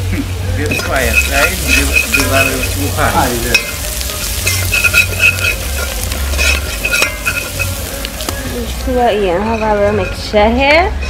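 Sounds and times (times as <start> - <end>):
spices sizzling in hot oil: 0.0 - 11.0
metal spoon scraping a pot: 0.6 - 8.0, 9.1 - 11.0.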